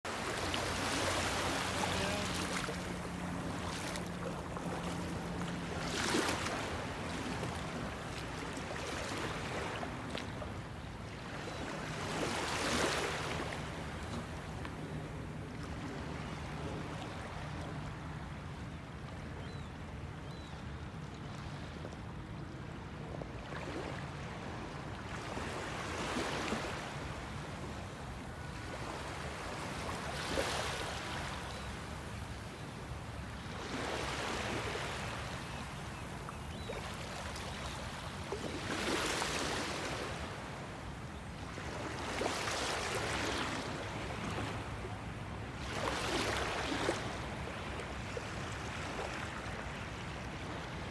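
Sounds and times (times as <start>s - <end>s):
water splashing and lapping: 0.1s - 10.5s.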